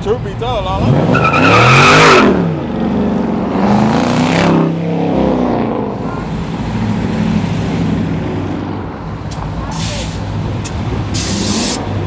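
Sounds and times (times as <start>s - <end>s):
cars rolling by: 0.0s - 12.0s.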